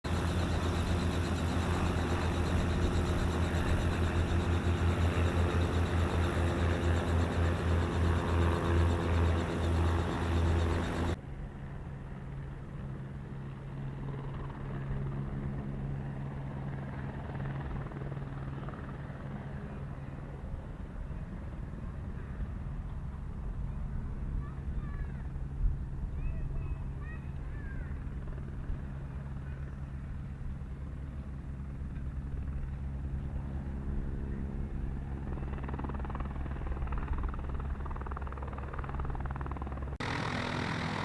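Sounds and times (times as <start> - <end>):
aircraft engine hum: 0.0 - 41.0
light aircraft engine pulsing: 0.1 - 41.0.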